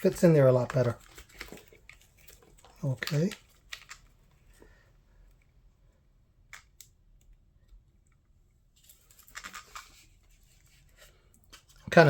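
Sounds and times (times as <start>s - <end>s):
rustling clicking clatter: 0.0s - 4.2s, 8.8s - 10.8s.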